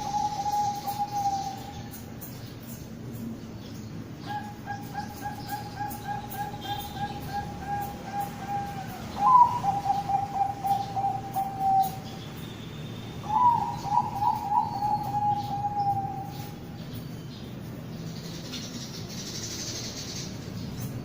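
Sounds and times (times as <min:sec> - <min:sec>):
dove cooing: 0:00.0 - 0:02.0, 0:04.2 - 0:12.2, 0:13.2 - 0:16.7.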